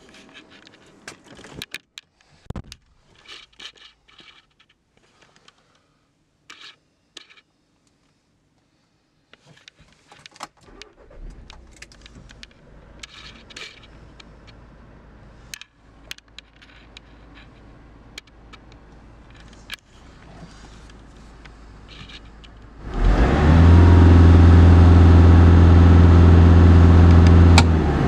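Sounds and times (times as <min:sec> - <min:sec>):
car keys jangling and clicking: 0:09.6 - 0:14.6, 0:18.2 - 0:20.1
car engine starting and idling: 0:10.6 - 0:28.0.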